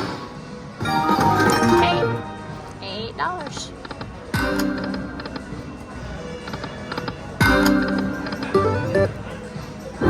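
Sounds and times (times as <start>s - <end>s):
slot machine game music: 0.8s - 3.3s, 7.4s - 9.4s.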